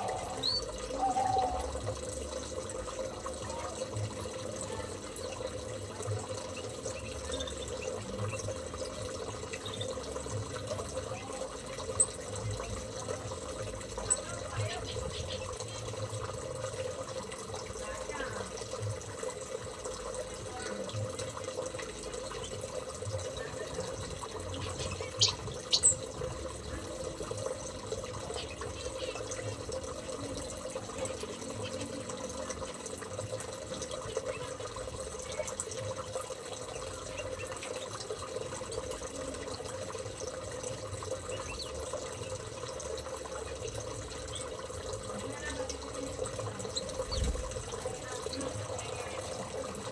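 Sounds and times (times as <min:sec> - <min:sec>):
small bird chirps: 0:00.0 - 0:01.7, 0:24.6 - 0:26.1, 0:46.7 - 0:47.5
running water: 0:00.0 - 0:49.9.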